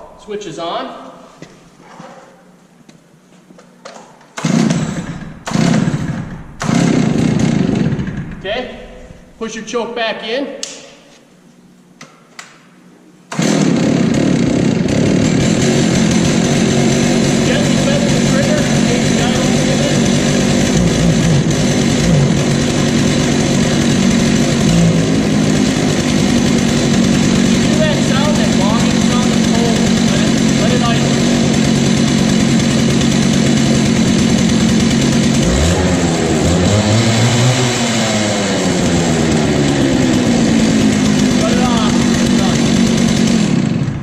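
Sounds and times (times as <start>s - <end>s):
chainsaw engine bursts: 4.4s - 9.8s, 13.3s - 44.0s
starter cord pulls: 17.6s - 31.6s.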